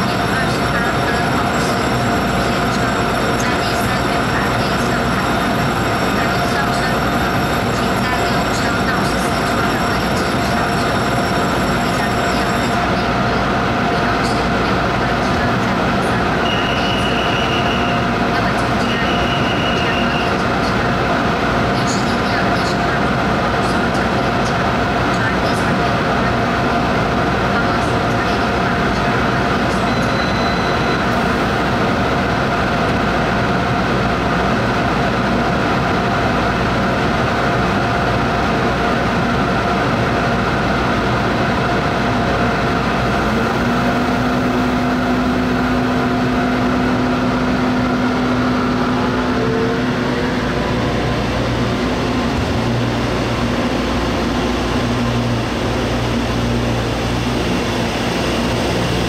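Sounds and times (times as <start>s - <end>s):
train motor whine: 0.0s - 20.7s, 41.5s - 59.0s
electric train humming: 0.0s - 59.0s.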